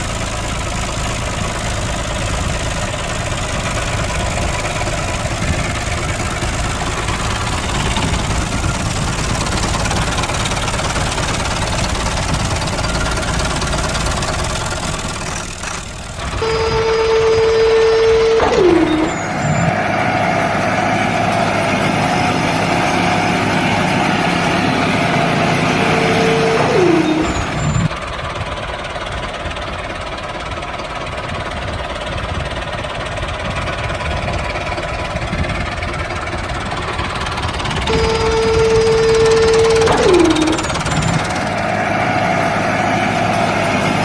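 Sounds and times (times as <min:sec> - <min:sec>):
high tone falling in pitch: 0:16.3 - 0:20.0, 0:25.7 - 0:27.9, 0:37.9 - 0:42.3
small motor humming: 0:37.8 - 0:41.4.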